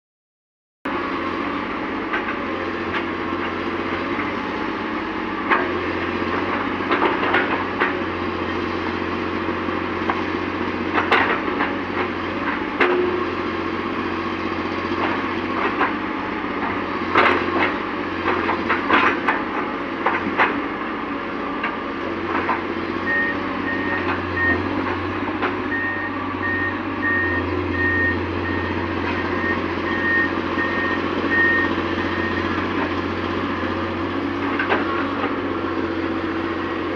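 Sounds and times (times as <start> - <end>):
excavator diesel engine running: 0.9 - 36.9
knocks and clanks from digging: 5.5 - 8.0, 10.9 - 13.2, 16.6 - 20.6, 34.4 - 35.4.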